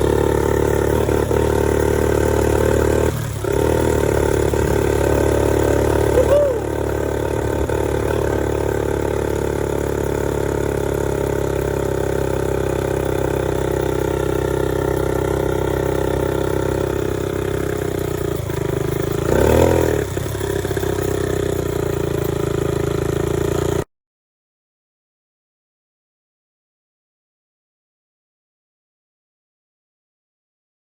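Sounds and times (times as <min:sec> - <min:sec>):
motorcycle engine idling: 0:00.0 - 0:23.9.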